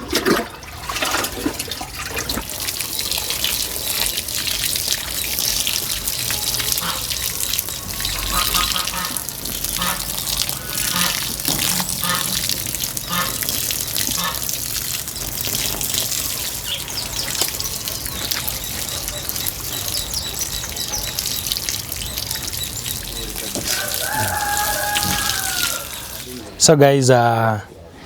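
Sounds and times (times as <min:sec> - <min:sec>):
water running and splashing: 0:00.0 - 0:26.7
faint voices: 0:17.3 - 0:28.0.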